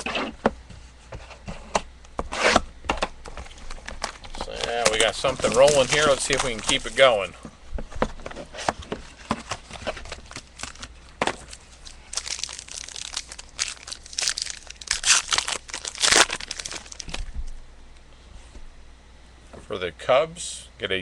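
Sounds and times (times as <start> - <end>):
wrapper crinkling and tearing: 3.4 - 7.2, 9.4 - 17.3.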